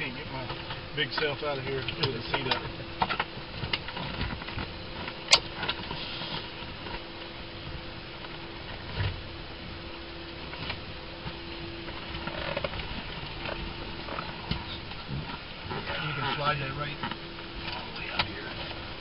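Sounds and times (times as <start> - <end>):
faint steady hum: 0.0 - 19.0
sharp click: 5.3 - 5.5.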